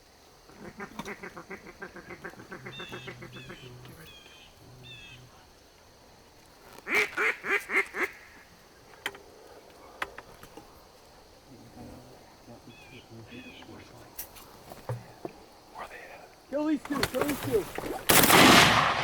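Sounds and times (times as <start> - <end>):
duck quacking: 0.5 - 3.8, 6.9 - 8.4.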